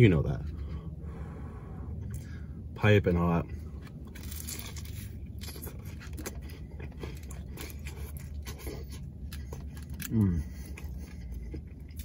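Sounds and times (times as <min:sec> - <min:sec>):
steady low hum: 0:00.0 - 0:12.0
crunchy biting and chewing: 0:03.8 - 0:12.0
fried wrapper crackles: 0:04.0 - 0:10.2.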